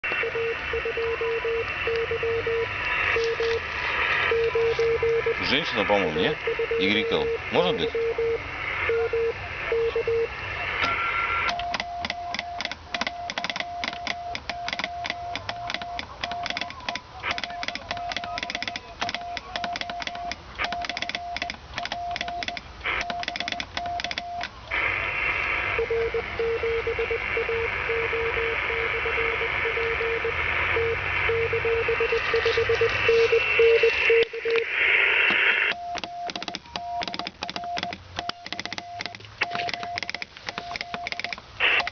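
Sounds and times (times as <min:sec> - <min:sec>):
morse code tones: 0:00.0 - 0:24.5, 0:25.7 - 0:41.9
radio band hiss: 0:00.1 - 0:13.6, 0:14.8 - 0:21.2, 0:22.8 - 0:23.6, 0:24.5 - 0:35.8, 0:38.4 - 0:41.9
sharp clicking: 0:11.5 - 0:24.6, 0:35.3 - 0:41.9.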